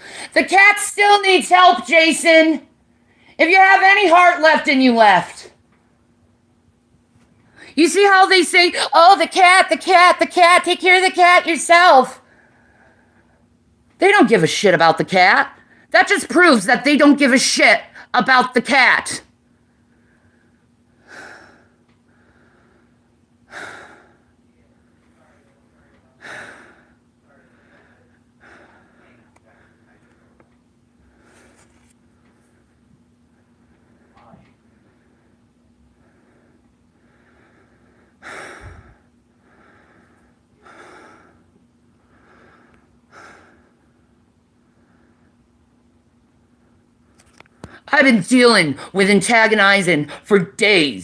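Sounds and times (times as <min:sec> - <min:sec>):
person breathing heavily: 0:00.0 - 0:00.4, 0:20.0 - 0:24.4, 0:26.2 - 0:30.4, 0:36.0 - 0:44.0
faint hum: 0:00.0 - 0:51.0
person exhaling heavily: 0:38.2 - 0:39.0.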